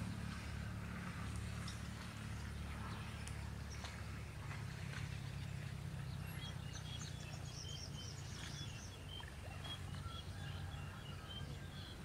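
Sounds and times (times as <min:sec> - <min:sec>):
steady low rumble: 0:00.0 - 0:12.0
small birds chirping: 0:01.6 - 0:12.0.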